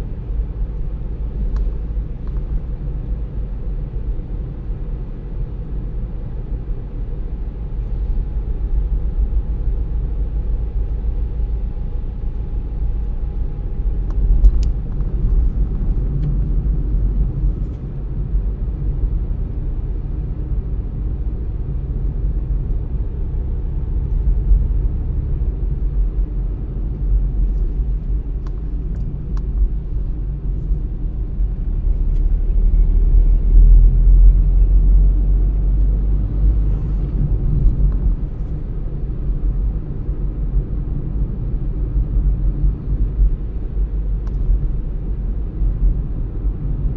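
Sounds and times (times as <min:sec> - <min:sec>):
car driving rumble: 0:00.0 - 0:46.9.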